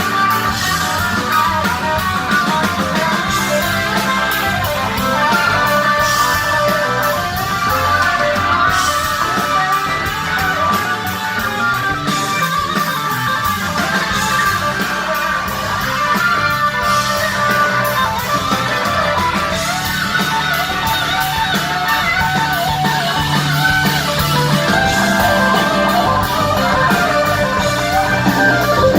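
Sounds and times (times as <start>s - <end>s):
electric guitar: 0.0s - 28.9s
live rock band playing: 0.0s - 28.9s.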